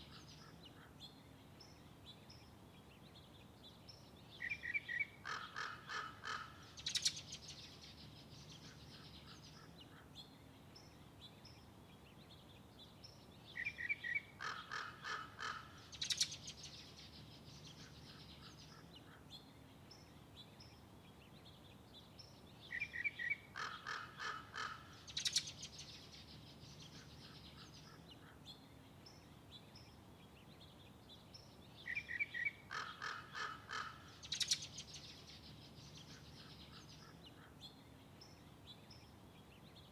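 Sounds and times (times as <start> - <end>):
bird calling: 4.4 - 7.3, 13.6 - 16.5, 22.7 - 25.7, 31.9 - 34.8.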